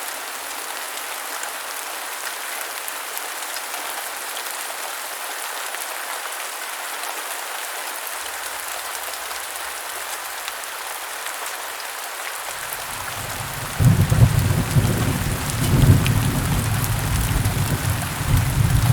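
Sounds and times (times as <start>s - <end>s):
heavy rain falling: 12.4s - 18.9s
thunder rumble: 13.0s - 18.9s.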